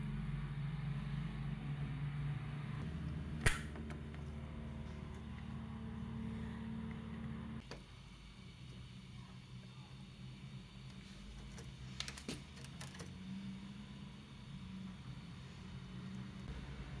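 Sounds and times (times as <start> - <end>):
washing machine humming: 0.0 - 17.0
sharp click: 3.4 - 3.9.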